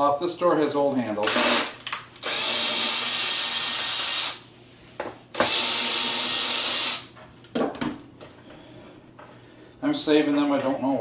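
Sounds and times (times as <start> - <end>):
cordless drill running: 1.2 - 4.4, 5.4 - 7.1.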